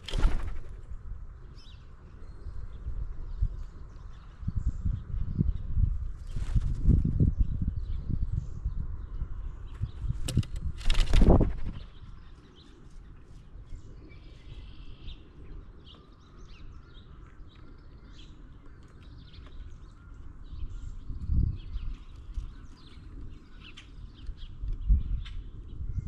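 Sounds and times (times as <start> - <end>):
birds chirping and calling: 7.8 - 26.0.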